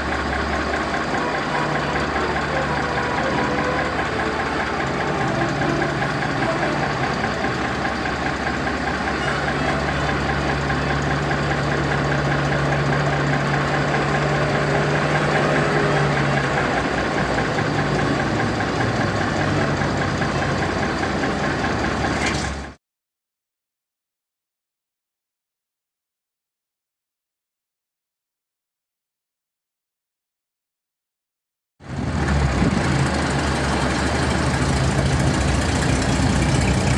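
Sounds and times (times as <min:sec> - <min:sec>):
truck engine idling: 0:00.0 - 0:22.8, 0:31.9 - 0:36.9.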